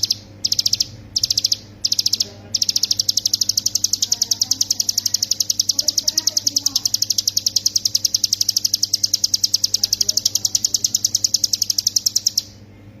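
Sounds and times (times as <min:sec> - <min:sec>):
bird singing fast trill: 0:00.0 - 0:12.5.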